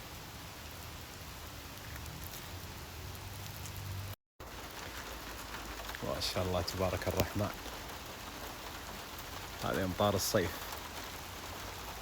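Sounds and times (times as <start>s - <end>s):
rain shower hiss: 0.0s - 12.0s.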